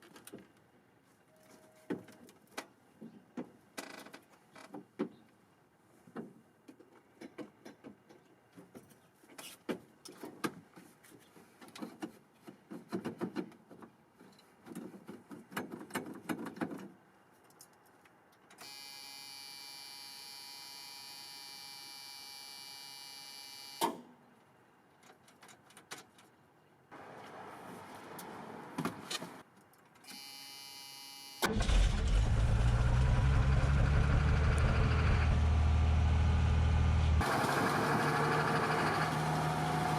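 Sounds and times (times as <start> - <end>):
electric warning buzzer: 18.6 - 23.8, 30.1 - 31.5.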